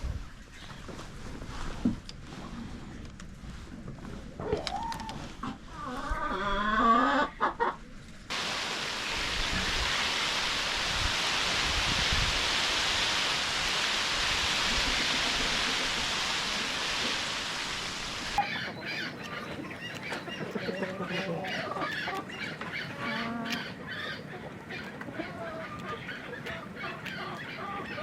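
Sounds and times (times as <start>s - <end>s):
steady hiss: 8.3s - 18.4s
chickens clucking: 18.3s - 28.0s.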